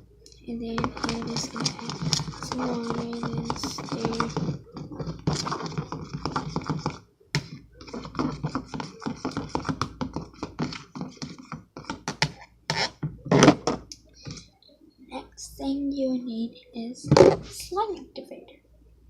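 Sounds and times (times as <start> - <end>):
utensil scraping slime in a bowl: 0.6 - 14.5.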